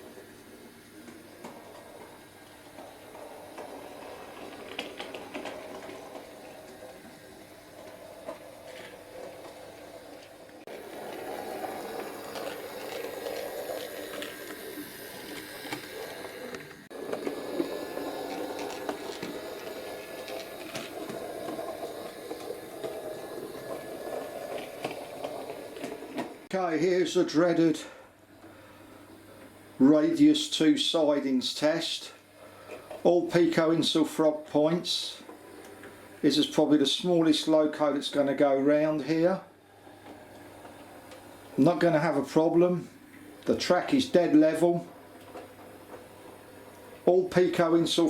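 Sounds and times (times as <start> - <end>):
model train motor whirring: 0.0 - 26.5
wheels clicking over rail joints: 1.0 - 26.5.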